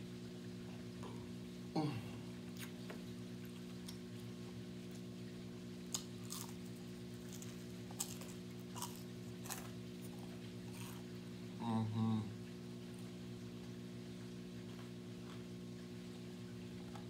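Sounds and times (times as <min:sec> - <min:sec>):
low electrical hum: 0:00.0 - 0:17.0
person chewing crunchy food: 0:05.9 - 0:11.2.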